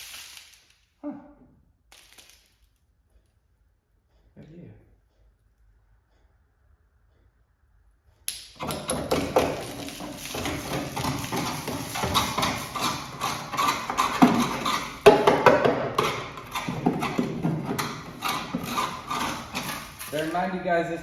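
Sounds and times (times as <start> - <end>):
knocking and clattering: 8.5 - 20.5.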